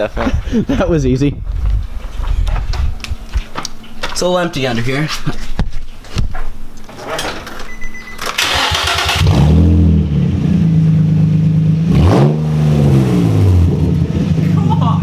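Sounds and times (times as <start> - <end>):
unmuffled car engine starting: 8.2 - 15.0.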